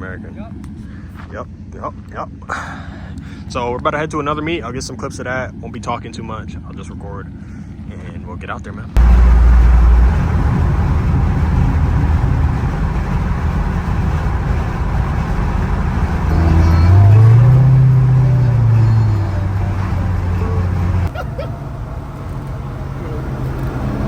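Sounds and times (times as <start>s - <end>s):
car engine rumbling and revving: 8.8s - 24.0s.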